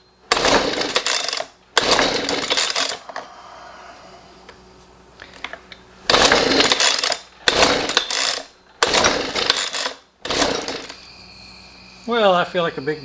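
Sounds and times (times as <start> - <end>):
leaf blower recoil starter cranking: 0.3 - 3.3, 5.2 - 11.0.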